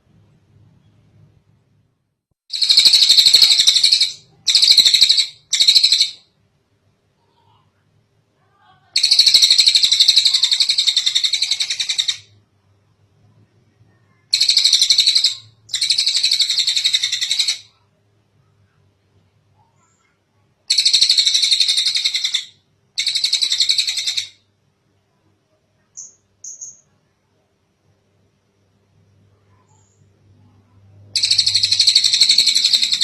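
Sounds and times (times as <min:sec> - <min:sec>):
bird singing high rapid trills: 0:02.5 - 0:06.2, 0:09.0 - 0:12.3, 0:14.3 - 0:17.8, 0:20.7 - 0:24.4, 0:26.0 - 0:26.9, 0:31.1 - 0:33.0.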